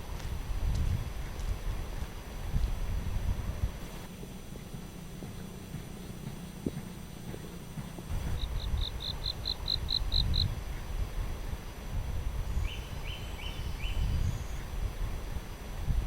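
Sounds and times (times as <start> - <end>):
steady low rumble: 0.0 - 16.0
bird calling: 5.5 - 10.5, 12.5 - 14.8.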